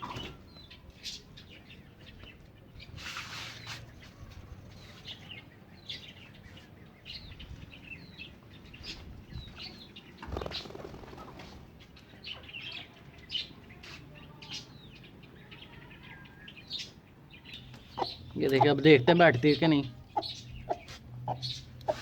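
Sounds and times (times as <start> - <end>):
birds chirping: 0.0 - 22.0
wings flapping: 10.2 - 11.7.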